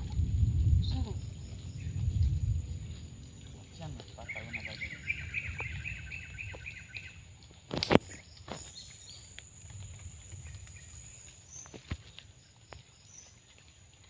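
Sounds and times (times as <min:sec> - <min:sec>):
bird chirping: 0:04.1 - 0:07.2.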